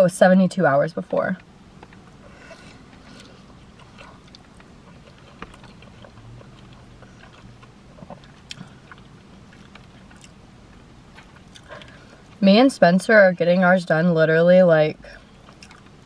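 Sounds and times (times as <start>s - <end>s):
steady low hum: 0.0s - 16.0s
person chewing with mouth clicks: 1.8s - 12.4s, 15.2s - 16.0s.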